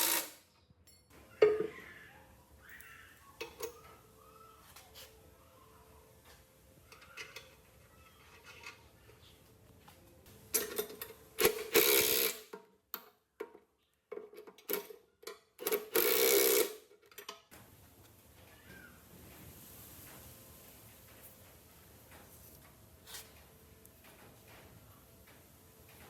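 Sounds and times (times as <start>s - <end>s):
small machine humming and hissing: 0.0s - 0.4s, 11.4s - 12.5s, 15.9s - 16.8s
faint high calls: 1.2s - 8.4s, 18.4s - 19.1s.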